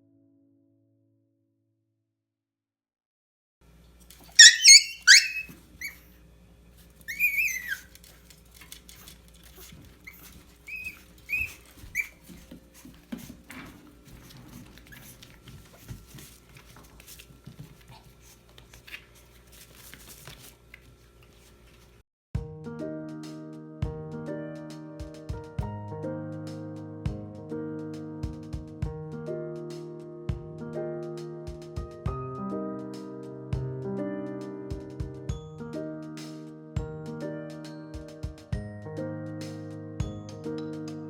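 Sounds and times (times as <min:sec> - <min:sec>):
faint room hum: 0:03.6 - 0:22.0
dog whining: 0:04.3 - 0:06.0, 0:07.1 - 0:08.0, 0:09.6 - 0:12.3.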